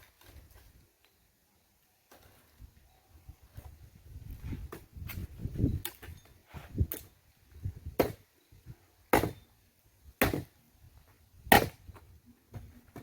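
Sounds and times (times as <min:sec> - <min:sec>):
firewood being chopped: 0:07.9 - 0:08.2, 0:09.1 - 0:09.4, 0:10.2 - 0:10.6, 0:11.5 - 0:13.0.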